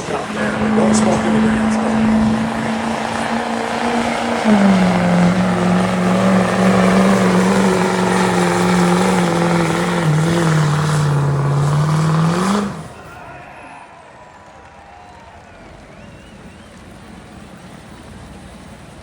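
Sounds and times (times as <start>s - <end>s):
diesel engine revving high: 0.0s - 13.4s.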